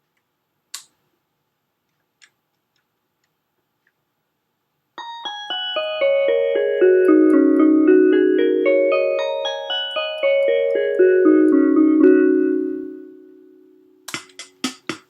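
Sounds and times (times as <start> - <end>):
electronic keyboard melody: 5.0 - 15.0.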